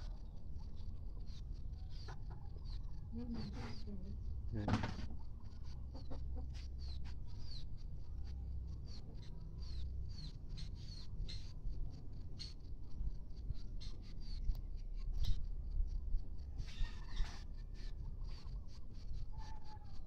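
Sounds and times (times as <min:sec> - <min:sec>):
chicks peeping: 0:00.0 - 0:11.6, 0:16.6 - 0:19.9.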